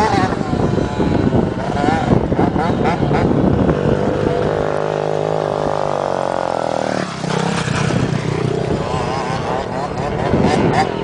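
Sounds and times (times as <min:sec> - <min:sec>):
dirt bike engine at high revs: 0:00.0 - 0:11.0
other motorbikes revving: 0:00.0 - 0:11.0.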